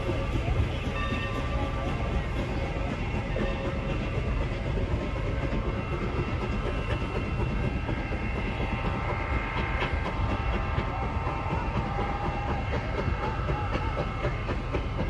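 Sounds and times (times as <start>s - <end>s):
rail joint clicks: 0.0s - 15.0s
train wheels rumbling on rails: 0.0s - 15.0s.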